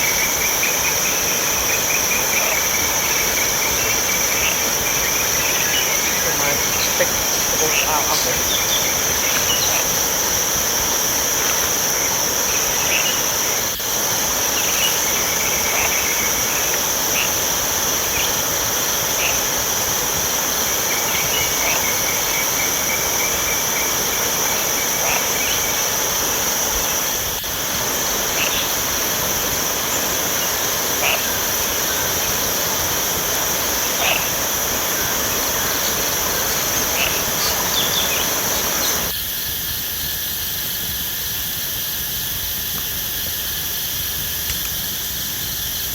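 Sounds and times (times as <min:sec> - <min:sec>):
high-pitched insect drone: 0:00.0 - 0:45.9
insect chirps: 0:00.0 - 0:45.9.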